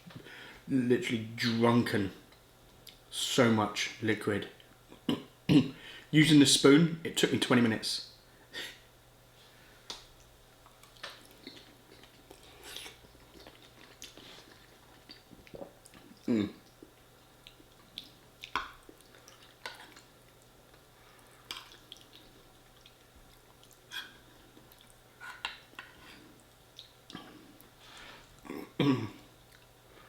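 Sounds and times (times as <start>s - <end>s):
person chewing food: 10.6s - 29.8s.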